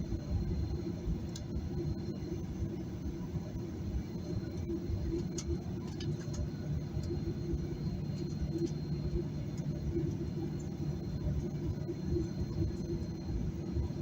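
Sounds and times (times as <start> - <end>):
aircraft engines rumbling: 0.0 - 14.0.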